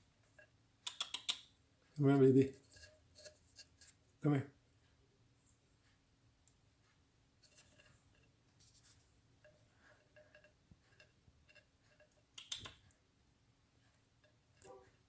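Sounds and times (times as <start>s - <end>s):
bird clicks and scratches: 0.3s - 1.6s, 2.5s - 4.0s, 7.4s - 13.0s
rustling scrape: 2.5s - 4.0s, 7.4s - 12.2s.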